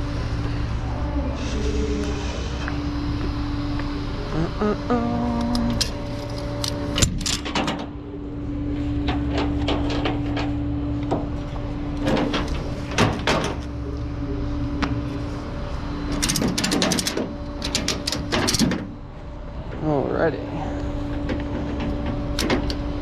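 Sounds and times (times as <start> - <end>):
engine hum: 0.0 - 23.0
metallic clicks and knocks: 16.2 - 18.9, 21.3 - 22.8.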